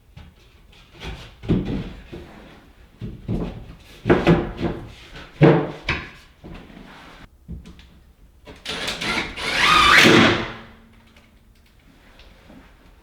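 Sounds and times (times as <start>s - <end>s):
drywall knocking and scraping: 0.2s - 6.7s.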